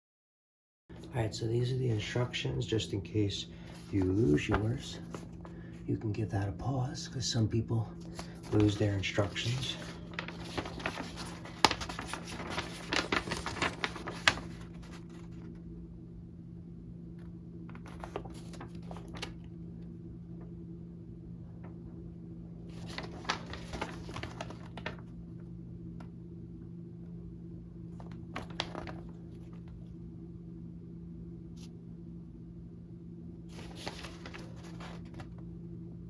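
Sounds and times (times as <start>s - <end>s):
low electrical hum: 0.9s - 36.0s
paper rustling: 3.6s - 5.7s, 8.0s - 15.6s, 17.2s - 19.5s, 22.6s - 25.2s, 27.9s - 29.9s, 33.5s - 35.5s.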